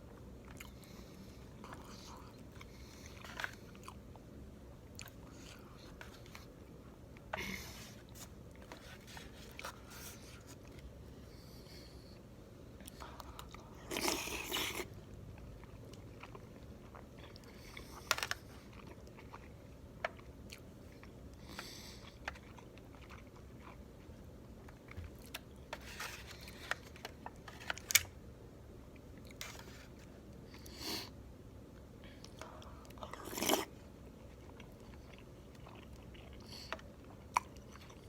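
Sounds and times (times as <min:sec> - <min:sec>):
biting and chewing: 0:13.2 - 0:28.0.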